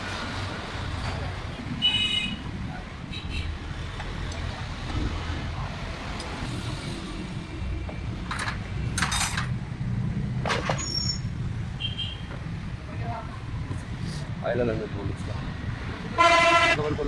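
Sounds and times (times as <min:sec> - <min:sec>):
metal tools clinking and rattling: 0:08.2 - 0:09.6.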